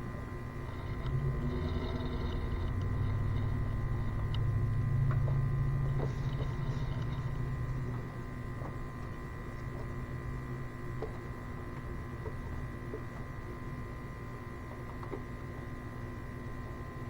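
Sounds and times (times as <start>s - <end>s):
air pump humming: 0.0s - 13.5s.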